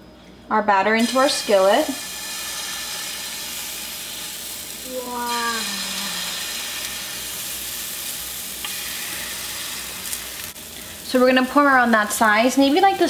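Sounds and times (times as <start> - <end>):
batter sizzling in skillet: 1.0 - 13.0
person's short falling voiced sound: 4.9 - 6.4.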